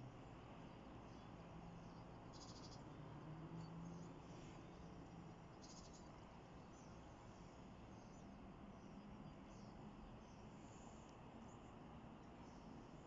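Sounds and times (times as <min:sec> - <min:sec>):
faint low hum: 0:00.0 - 0:13.0
soft bird chirps: 0:00.0 - 0:13.0
bird trills: 0:02.3 - 0:02.8, 0:05.6 - 0:06.1.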